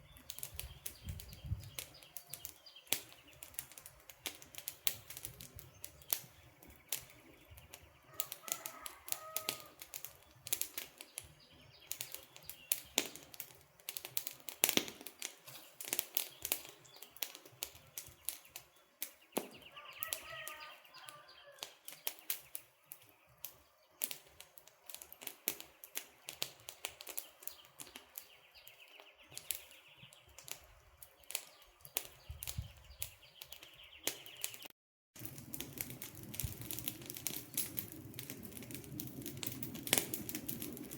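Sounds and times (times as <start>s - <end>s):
campfire crackling and popping: 0.0s - 40.9s
bird chirps: 17.8s - 23.6s, 27.2s - 30.4s, 31.1s - 34.7s.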